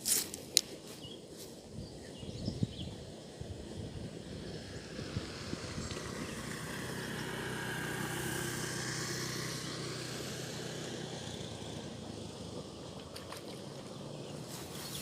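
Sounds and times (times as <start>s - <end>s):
motor vehicle passing by: 3.5s - 15.0s.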